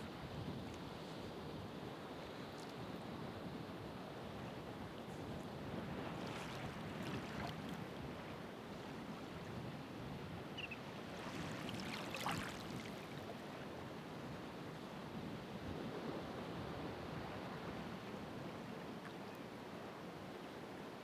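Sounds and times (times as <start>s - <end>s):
wave splashing: 11.1s - 13.2s.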